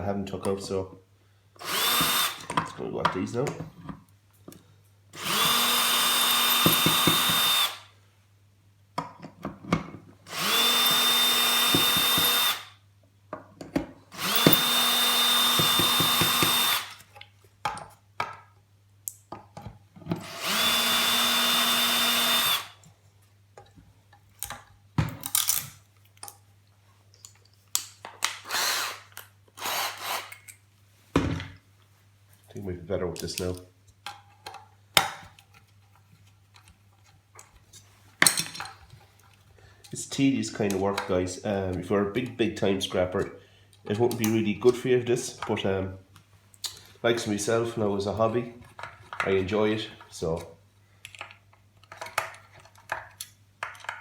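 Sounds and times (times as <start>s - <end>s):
cordless drill motor running: 1.6s - 2.5s, 5.2s - 7.9s, 10.3s - 12.7s, 14.1s - 17.0s, 20.2s - 22.8s, 28.5s - 30.3s
parts clicking and rattling: 33.2s - 40.0s, 51.0s - 54.0s.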